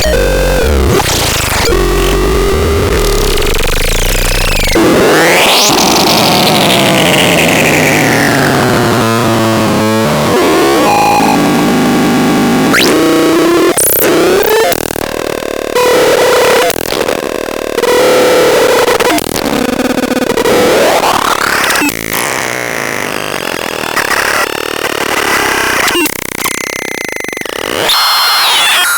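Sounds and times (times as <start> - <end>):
stuttering electronic buzzing tones: 0.0 - 8.4
harsh synthesized electronic noise: 0.0 - 28.9.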